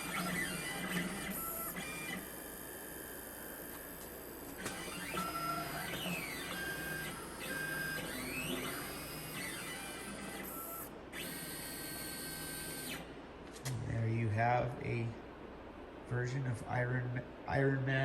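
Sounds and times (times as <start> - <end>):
stepper motors whining: 0.0 - 13.1.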